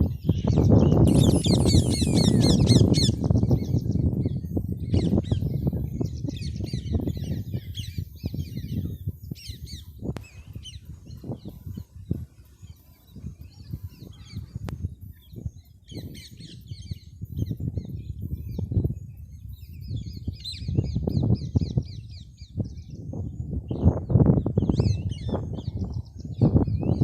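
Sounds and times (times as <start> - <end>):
parrots chattering: 1.1 - 3.1.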